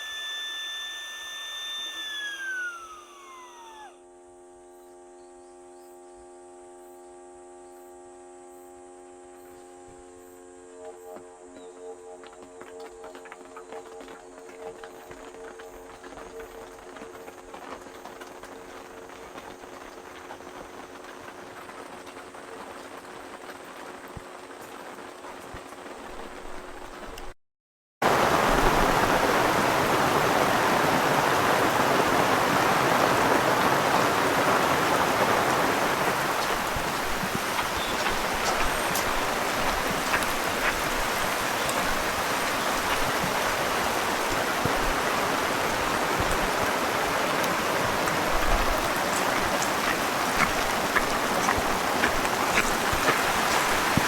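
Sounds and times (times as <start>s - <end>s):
faint steady hum: 0.0s - 27.3s
heavy rain falling: 15.1s - 27.2s, 28.0s - 54.0s.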